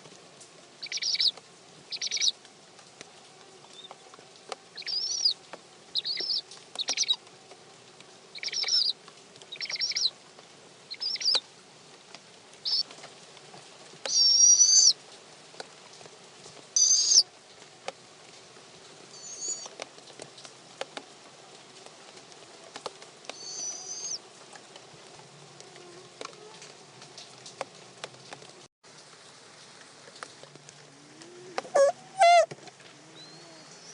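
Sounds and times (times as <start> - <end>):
owls squealing: 14.1 - 14.9, 16.8 - 17.2, 31.6 - 32.5.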